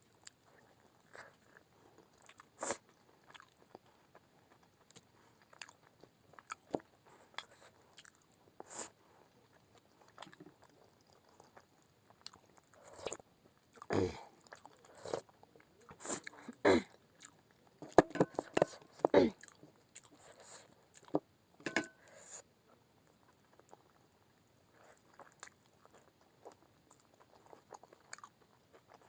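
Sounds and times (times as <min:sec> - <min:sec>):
person chewing and biting: 0:03.3 - 0:05.8, 0:06.4 - 0:08.2, 0:25.0 - 0:29.0.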